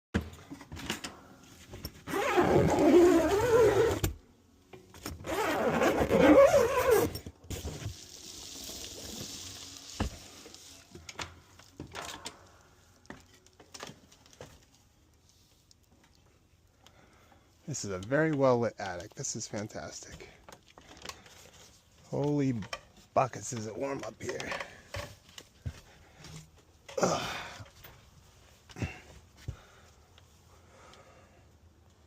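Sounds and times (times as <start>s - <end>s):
squeaky scraping and creaking: 2.0s - 4.1s, 5.2s - 7.3s.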